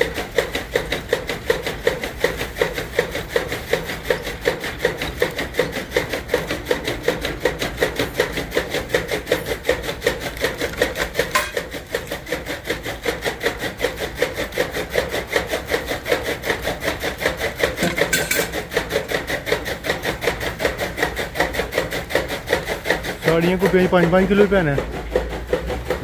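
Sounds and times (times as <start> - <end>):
machine beating fast strokes: 0.0 - 26.0.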